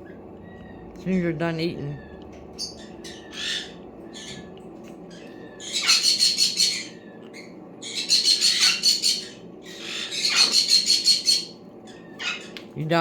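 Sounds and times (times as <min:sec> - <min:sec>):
parrot squawking: 0:01.8 - 0:04.5, 0:05.1 - 0:12.6.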